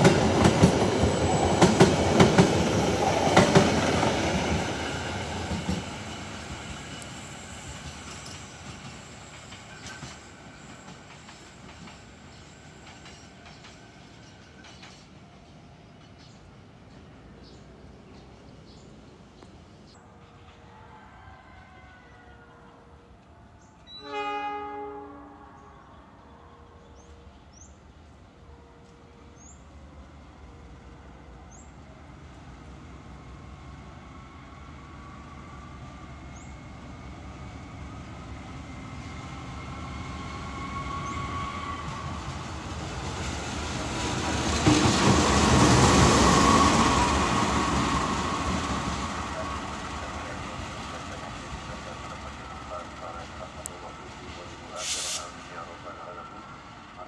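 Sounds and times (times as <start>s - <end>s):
train running on rails: 0.0s - 20.9s, 21.6s - 57.0s
locomotive horn blast: 23.9s - 25.7s.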